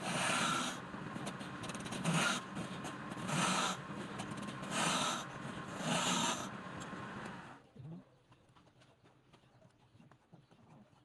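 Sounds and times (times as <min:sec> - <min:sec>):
hand tool rasping wood: 0:00.0 - 0:06.5.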